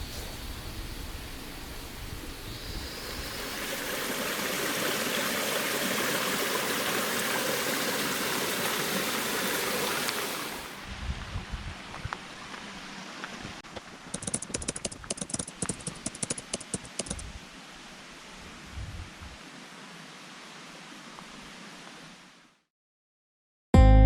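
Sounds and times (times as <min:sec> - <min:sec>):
running water rushing: 0:00.0 - 0:10.9.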